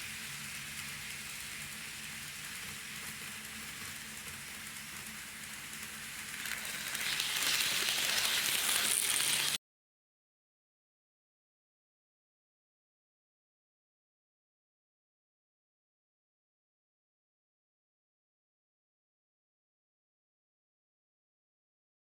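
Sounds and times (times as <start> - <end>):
faint motor hum: 0.0 - 9.6
model train wheels hissing on rail: 0.0 - 9.6.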